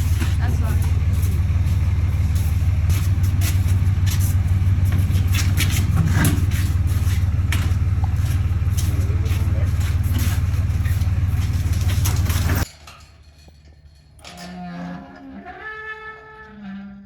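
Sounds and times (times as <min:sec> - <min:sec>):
engine humming: 0:00.0 - 0:14.1.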